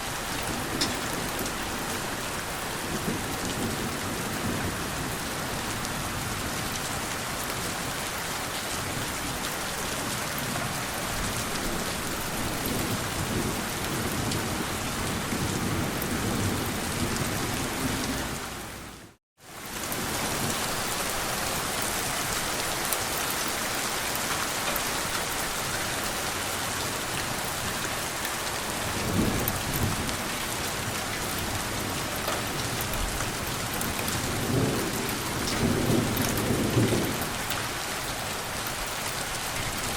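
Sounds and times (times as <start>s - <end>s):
heavy rain: 0.0s - 39.9s
thunder rumbling: 28.6s - 37.9s.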